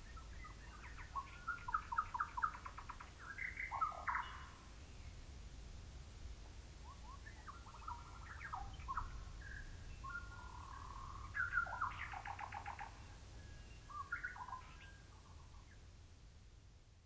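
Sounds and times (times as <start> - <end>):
faint low rumble: 0.0 - 17.0
birds chirping and whistling: 0.1 - 4.6, 6.9 - 15.6.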